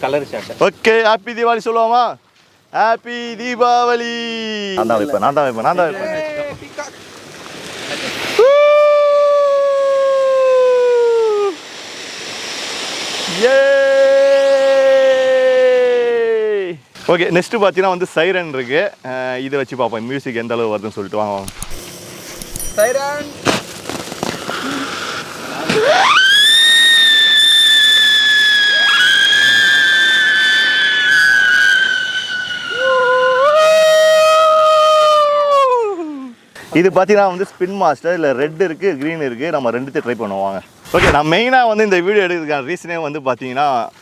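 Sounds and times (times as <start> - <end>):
firework whistling: 4.8 - 16.2, 21.3 - 35.9, 40.8 - 41.5
firework hissing: 4.8 - 17.8, 20.8 - 35.8, 38.7 - 41.6
siren firecracker whistling: 21.5 - 23.4, 24.4 - 35.7.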